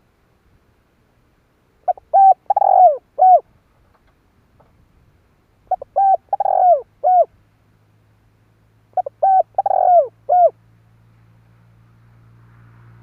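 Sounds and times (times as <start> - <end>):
dove cooing: 1.8 - 3.5, 5.7 - 7.4, 8.9 - 10.6.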